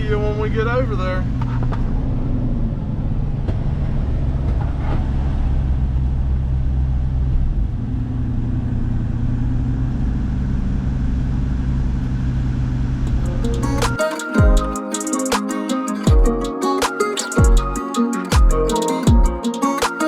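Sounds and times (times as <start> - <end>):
engine and road noise drone: 0.2 - 13.9.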